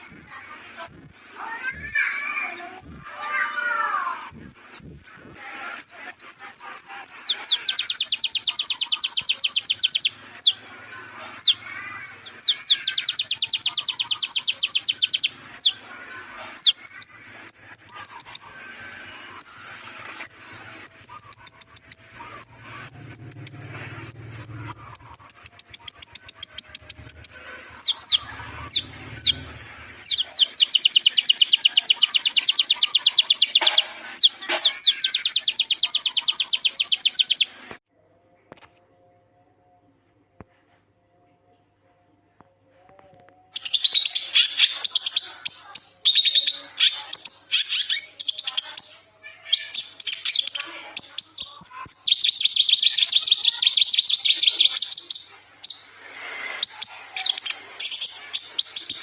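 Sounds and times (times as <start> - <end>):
sunbird singing high trills: 4.3 - 10.6, 11.4 - 15.8, 20.3 - 37.6.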